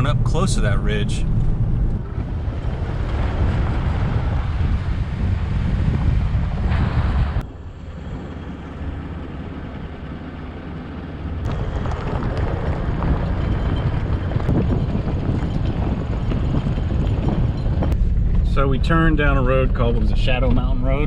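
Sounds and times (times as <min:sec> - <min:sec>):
vehicle engine and road rumble: 0:00.0 - 0:21.0
wind buffeting microphone: 0:00.0 - 0:21.0.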